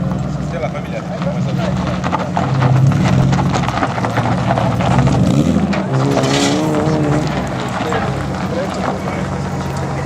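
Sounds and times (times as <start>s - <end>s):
car engine running hard: 0.0s - 10.0s
tyre squeal: 5.9s - 7.3s.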